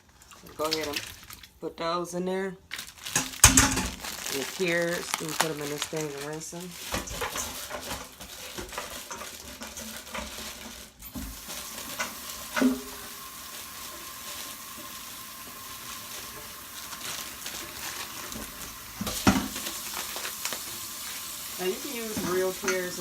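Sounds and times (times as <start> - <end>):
running tap water: 0.0 - 1.6, 3.2 - 23.0
knocks and clatters in sink: 3.2 - 4.0, 6.8 - 13.1, 18.2 - 19.8, 21.7 - 23.0.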